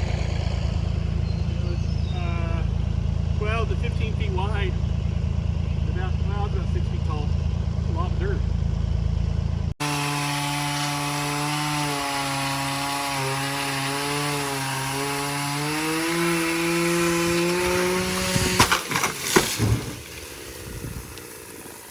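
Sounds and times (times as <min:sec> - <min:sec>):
skid steer engine running: 0:00.0 - 0:21.9
sharp knocks and clunks: 0:17.4 - 0:20.0.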